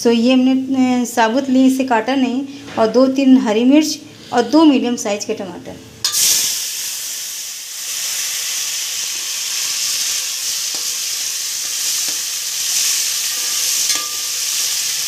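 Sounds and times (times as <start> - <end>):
vegetables sizzling in oil: 6.0 - 15.0.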